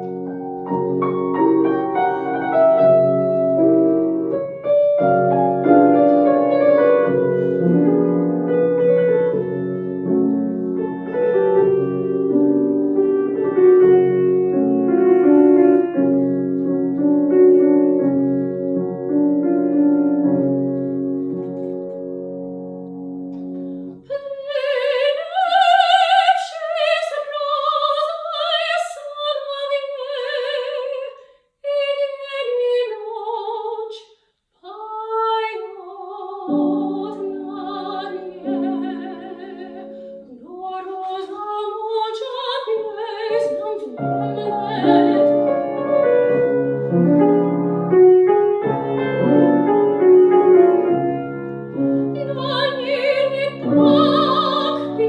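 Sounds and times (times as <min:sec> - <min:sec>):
piano accompaniment: 0:00.0 - 0:31.0, 0:34.8 - 0:55.0
soprano singing with vibrato: 0:24.0 - 0:46.0, 0:52.2 - 0:55.0.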